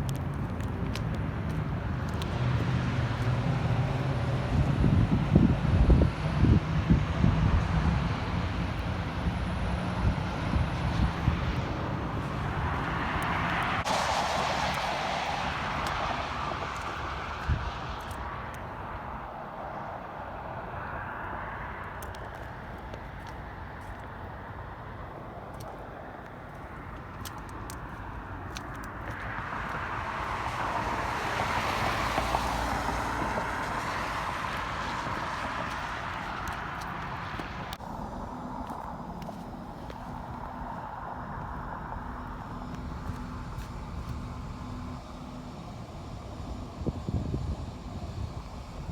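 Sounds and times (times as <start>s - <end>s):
car tyres on snowy road: 0.0s - 48.9s
vehicle passing: 0.0s - 48.9s.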